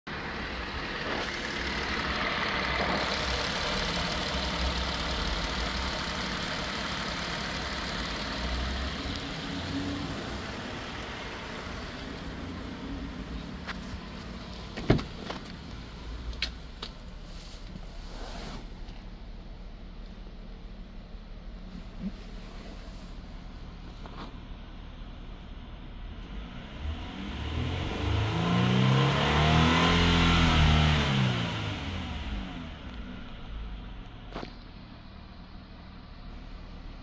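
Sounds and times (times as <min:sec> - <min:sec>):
engine idling: 0:00.1 - 0:18.0.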